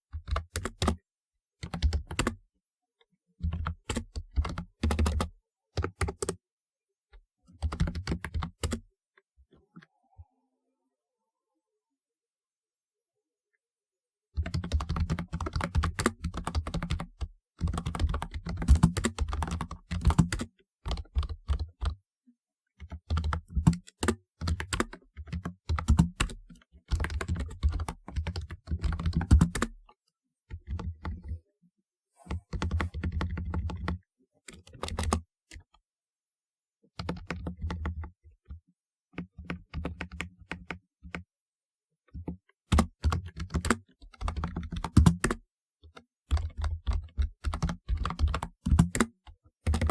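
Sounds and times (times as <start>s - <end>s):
mechanical keyboard typing: 0.1s - 1.0s, 1.6s - 2.4s, 3.4s - 6.4s, 7.6s - 8.9s, 14.4s - 22.0s, 22.8s - 29.8s, 30.6s - 31.4s, 32.4s - 34.0s, 34.6s - 35.6s, 37.0s - 38.1s, 39.2s - 41.2s, 42.1s - 45.4s, 46.3s - 49.9s.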